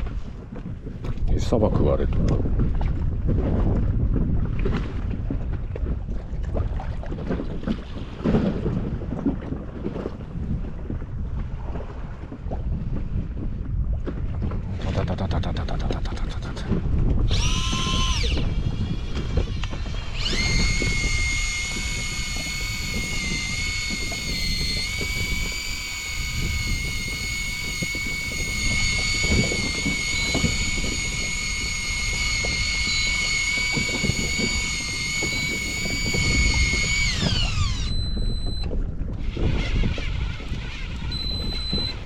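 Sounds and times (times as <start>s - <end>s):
water noise: 0.0s - 42.0s
wind buffeting: 0.0s - 42.0s
fishing reel motor whining: 15.1s - 42.0s.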